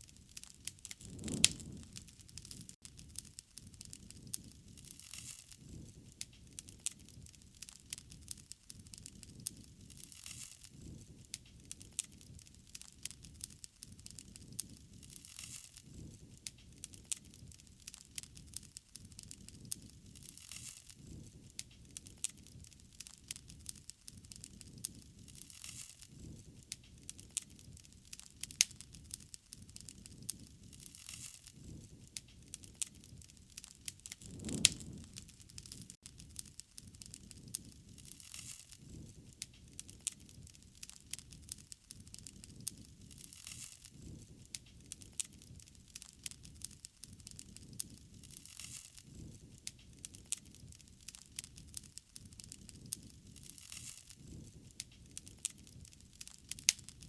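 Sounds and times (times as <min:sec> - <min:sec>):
wood fire crackling: 0:00.0 - 0:57.0
low flame rush: 0:00.8 - 0:02.8, 0:33.6 - 0:36.0.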